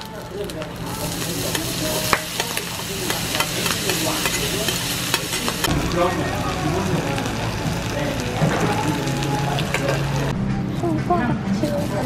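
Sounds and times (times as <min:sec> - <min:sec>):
food sizzling on a griddle: 0:00.0 - 0:10.3
metal utensils scraping and tapping: 0:01.5 - 0:05.7.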